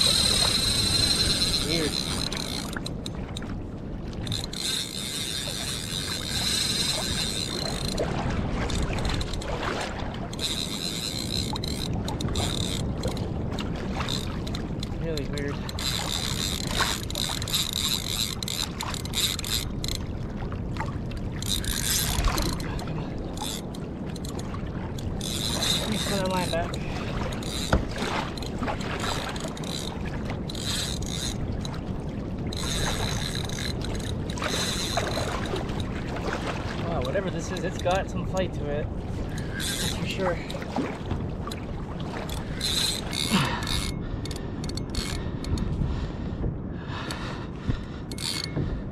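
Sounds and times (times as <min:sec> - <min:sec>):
fishing reel drag whining: 0:00.0 - 0:03.2, 0:04.2 - 0:08.0, 0:10.3 - 0:13.2, 0:14.0 - 0:20.0, 0:21.4 - 0:22.6, 0:23.3 - 0:31.7, 0:32.5 - 0:35.8, 0:39.2 - 0:40.5, 0:42.2 - 0:45.6, 0:48.1 - 0:48.6
water noise: 0:00.0 - 0:48.9
wind: 0:00.0 - 0:48.9.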